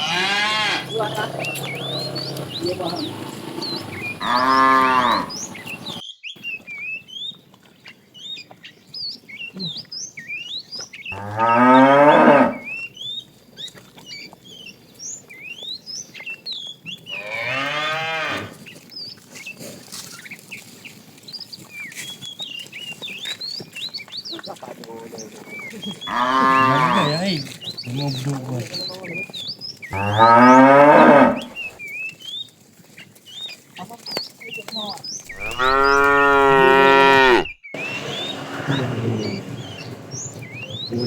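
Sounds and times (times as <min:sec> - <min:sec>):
cattle mooing: 0:00.0 - 0:06.0, 0:11.2 - 0:12.8, 0:17.1 - 0:18.6, 0:25.9 - 0:27.5, 0:29.9 - 0:31.6, 0:35.4 - 0:41.0
small birds chirping: 0:00.0 - 0:41.0.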